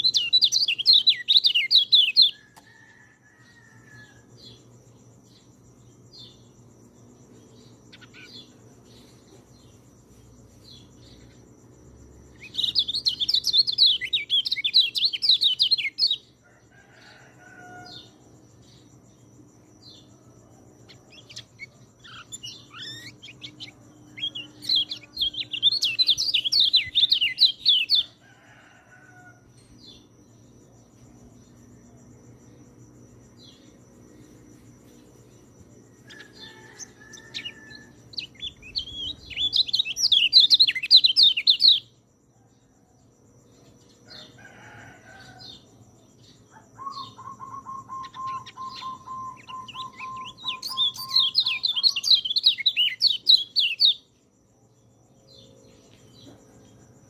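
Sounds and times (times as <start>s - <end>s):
high insect-like tone: 0.0s - 57.0s
soft bird chirps: 20.9s - 27.7s
songbird warbling: 21.2s - 27.9s, 46.8s - 53.9s.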